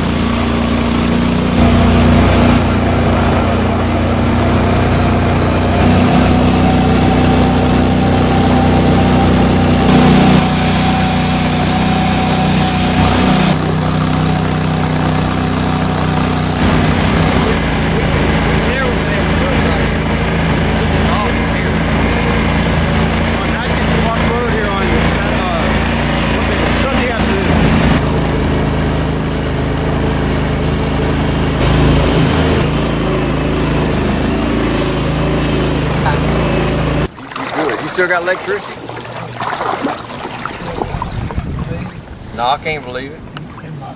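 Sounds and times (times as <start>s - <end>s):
thin whine: 0.0s - 29.4s
vehicle engine running: 0.0s - 37.2s.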